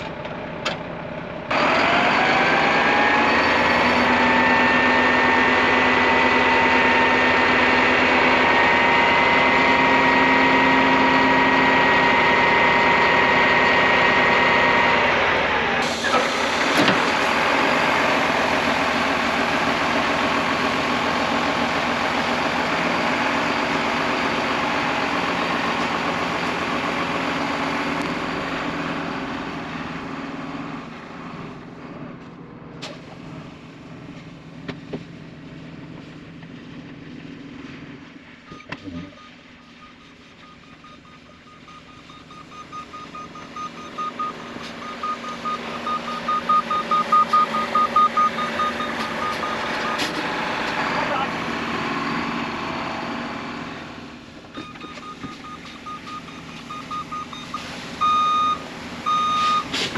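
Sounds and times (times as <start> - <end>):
heavy machine engine running: 0.0 - 59.9
repeating high beep: 38.5 - 50.0.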